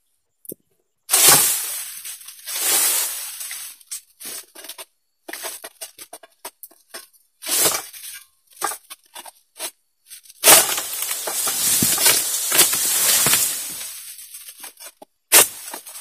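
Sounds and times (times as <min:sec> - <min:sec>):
palm leaves rustling loudly: 0:01.1 - 0:04.5, 0:10.4 - 0:16.0
sickle scraping palm frond: 0:01.1 - 0:05.7, 0:10.4 - 0:16.0
frond cracking: 0:10.4 - 0:14.4.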